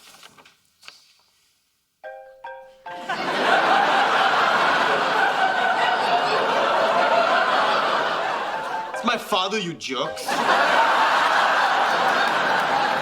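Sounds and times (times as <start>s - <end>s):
audience laughing: 3.0s - 9.3s, 10.2s - 13.0s.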